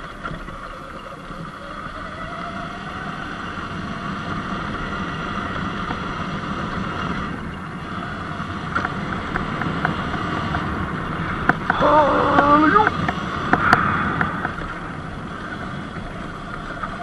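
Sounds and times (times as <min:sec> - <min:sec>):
tyre noise on dirt road: 0:00.0 - 0:17.0
wind on microphone: 0:10.6 - 0:16.3.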